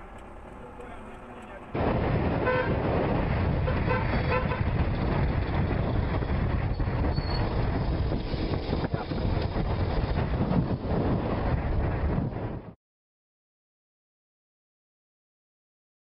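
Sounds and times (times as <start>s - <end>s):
engine and road noise: 0.0s - 12.8s
vehicle horn honking: 2.4s - 2.8s.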